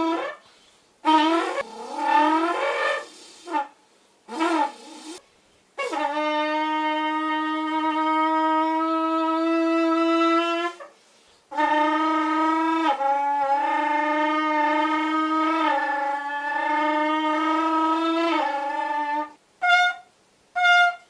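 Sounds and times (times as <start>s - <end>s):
trumpet imitating a motorbike: 0.0s - 5.2s, 5.8s - 10.9s, 11.5s - 21.0s.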